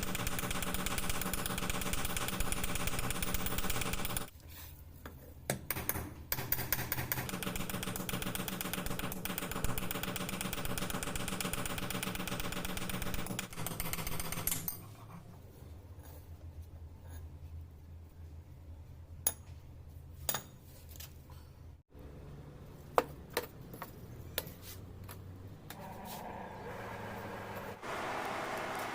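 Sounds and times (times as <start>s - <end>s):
machine fast rattle: 0.0s - 4.3s.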